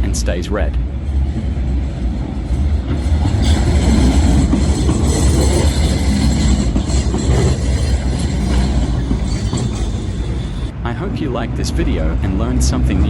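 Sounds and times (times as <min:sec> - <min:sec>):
tram wheels rumbling on track: 0:00.0 - 0:13.0
high squealing tones: 0:00.9 - 0:10.7.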